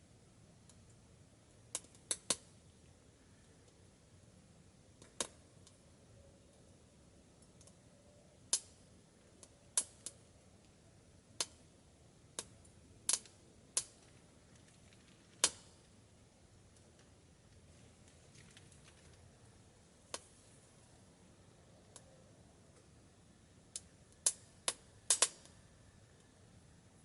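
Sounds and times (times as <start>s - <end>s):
wood fire popping and cracking: 1.7s - 2.5s, 12.4s - 16.0s, 16.7s - 19.5s, 23.7s - 25.5s.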